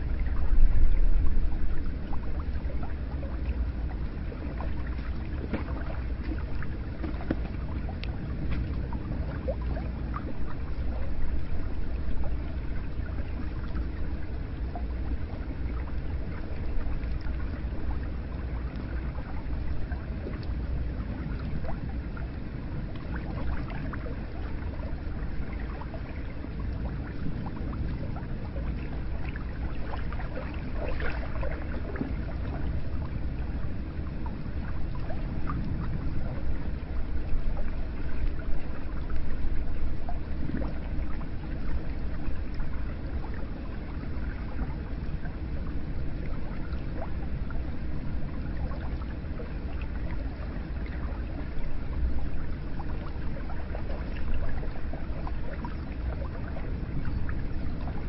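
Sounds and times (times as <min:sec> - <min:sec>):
water pouring and trickling: 0:00.0 - 0:45.7.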